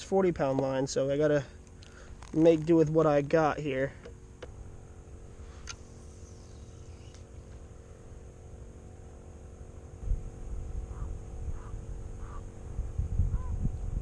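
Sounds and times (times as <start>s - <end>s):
electrical hum: 0.0s - 14.0s
wind rumble on microphone: 10.0s - 14.0s.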